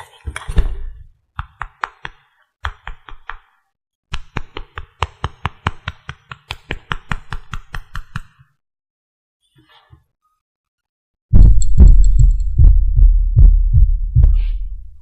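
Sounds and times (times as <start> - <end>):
rapid tapping on hard object: 4.1 - 8.3.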